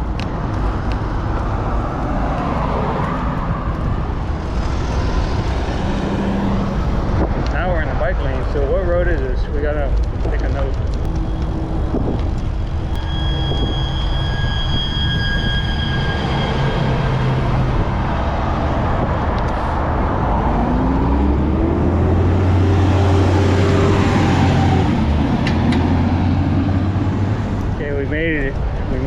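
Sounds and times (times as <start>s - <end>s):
heavy vehicle engine passing: 0.0s - 29.0s
road traffic passing: 0.0s - 29.0s
wind noise on microphone: 0.0s - 29.0s
high squealing tone: 10.8s - 19.0s.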